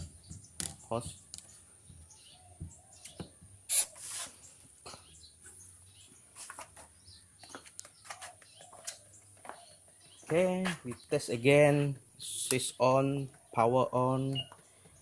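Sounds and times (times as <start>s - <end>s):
hose fitting clicks and knocks: 0.0s - 1.5s
brief hissing scrape: 3.7s - 4.4s.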